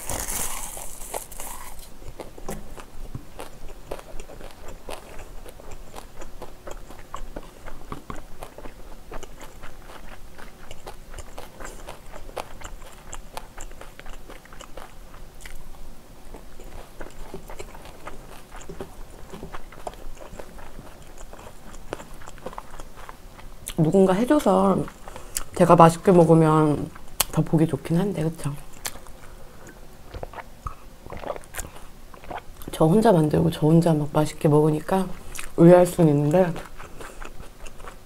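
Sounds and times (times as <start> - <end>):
seaweed crackling when bitten: 0.0 - 1.9
moist chewing clicks: 2.0 - 15.6, 16.3 - 23.9.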